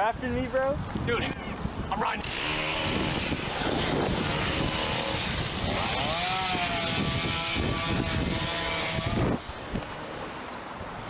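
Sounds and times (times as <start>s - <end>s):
wind buffeting microphone: 0.0s - 11.0s
small motor whining: 2.2s - 10.1s.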